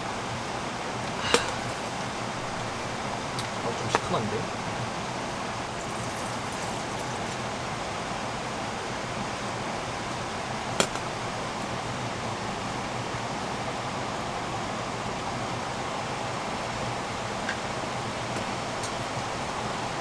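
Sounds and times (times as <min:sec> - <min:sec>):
steady hiss: 0:00.9 - 0:07.6.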